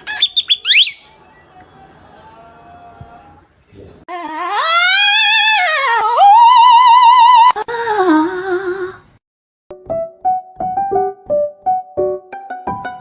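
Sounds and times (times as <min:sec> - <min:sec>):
piano music: 0:09.7 - 0:13.0.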